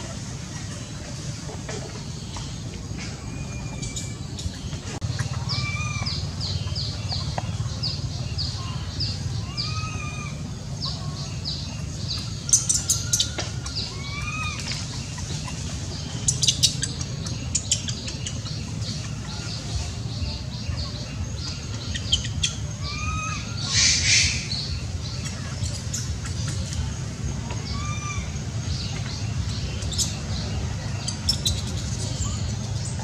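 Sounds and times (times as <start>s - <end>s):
birds chirping: 0.0s - 33.0s
low background rumble: 0.0s - 33.0s
bird whistles: 21.9s - 26.8s.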